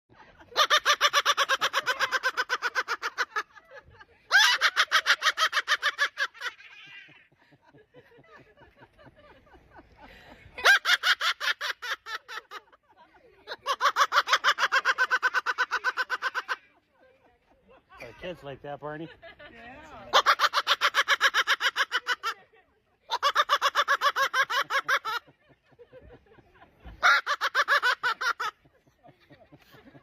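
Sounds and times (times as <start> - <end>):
parrot imitating laughter: 0.4 - 3.6, 4.3 - 7.4, 10.6 - 12.7, 13.5 - 16.6, 20.1 - 22.4, 23.1 - 25.3, 26.8 - 28.6.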